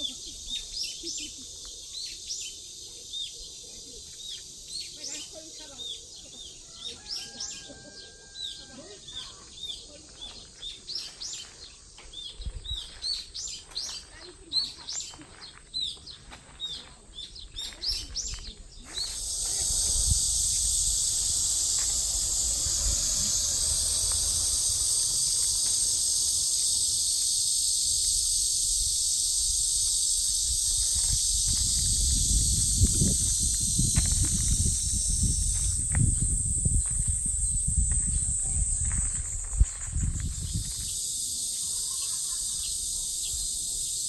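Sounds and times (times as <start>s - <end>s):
birds chirping: 0.0s - 31.6s
cicadas buzzing: 0.0s - 44.0s.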